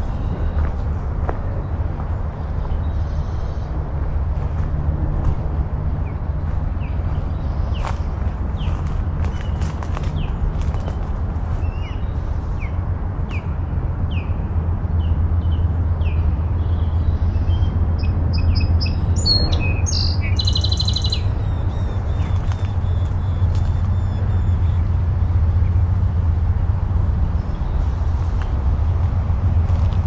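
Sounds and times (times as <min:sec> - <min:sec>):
songbirds chirping: 0:00.0 - 0:30.0
steady low rumble: 0:00.0 - 0:30.0.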